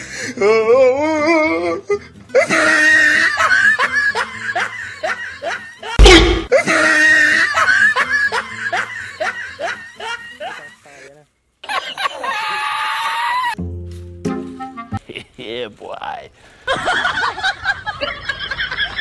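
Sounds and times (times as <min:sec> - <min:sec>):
laugh track: 0:02.0 - 0:10.9, 0:11.6 - 0:12.7, 0:16.7 - 0:19.0
loud sudden boom: 0:06.0 - 0:06.5.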